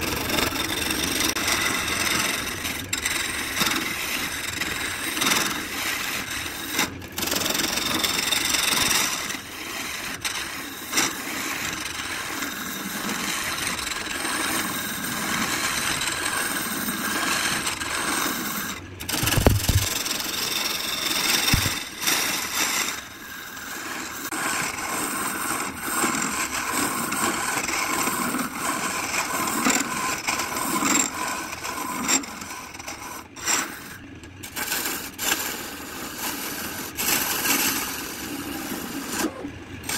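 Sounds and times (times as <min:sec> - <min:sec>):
lathe gouge cutting and scraping: 0:00.0 - 0:39.9.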